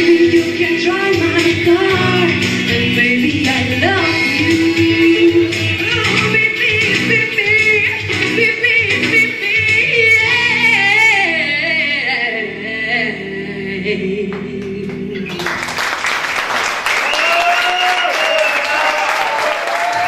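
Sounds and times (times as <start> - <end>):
live band playing: 0.0 - 11.1, 14.6 - 16.0
voices calling out: 14.6 - 15.8
audience applauding: 14.6 - 20.0.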